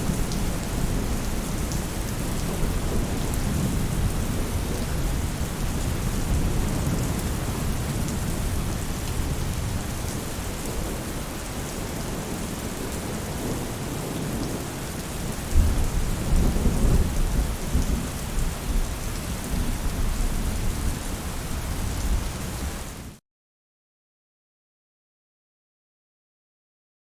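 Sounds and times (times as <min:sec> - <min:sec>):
rain on a roof: 0:00.0 - 0:23.2
thunder rumbling: 0:15.4 - 0:21.0.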